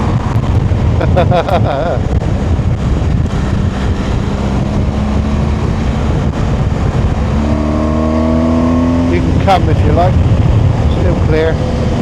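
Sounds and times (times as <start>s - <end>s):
motorcycle engine running: 0.0s - 12.0s
wind rush on microphone: 0.0s - 12.0s.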